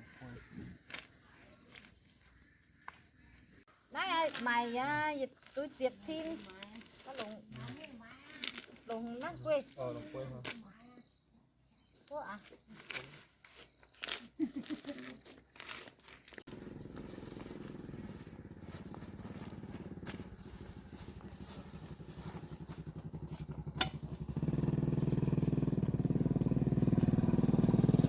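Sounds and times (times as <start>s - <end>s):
small motorbike engine running: 14.8s - 28.0s.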